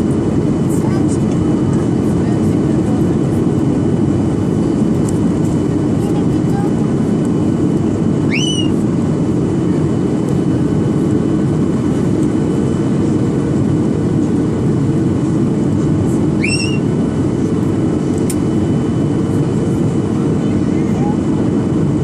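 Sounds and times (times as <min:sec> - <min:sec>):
airplane engine and airflow roar: 0:00.0 - 0:22.0.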